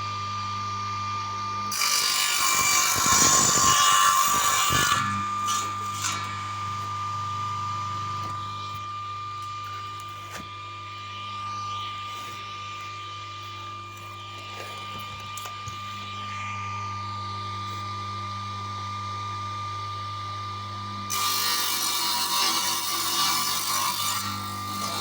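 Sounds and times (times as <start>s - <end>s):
power tool humming and whining: 0.0s - 25.0s
saw rasping through plywood: 1.7s - 16.4s, 21.1s - 25.0s.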